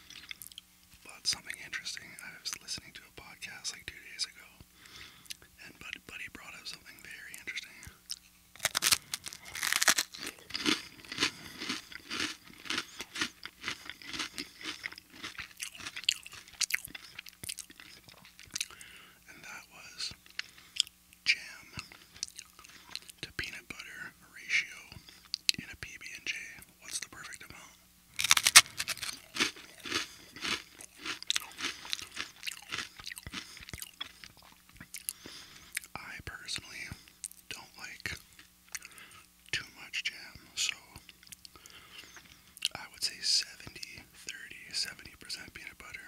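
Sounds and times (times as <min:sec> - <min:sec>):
crunchy snack chewing: 0:07.4 - 0:19.0, 0:20.2 - 0:23.2, 0:28.1 - 0:35.9.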